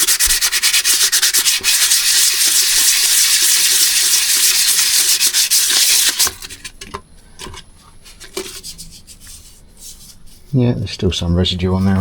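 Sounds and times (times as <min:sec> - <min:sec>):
sandpaper rubbing on metal: 0:00.0 - 0:06.4.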